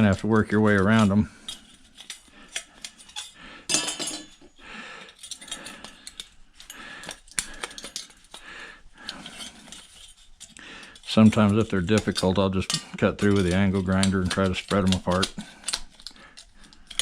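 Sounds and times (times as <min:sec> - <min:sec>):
metal tool clinking on fins: 0:00.0 - 0:17.0
metal scraping: 0:09.0 - 0:15.4.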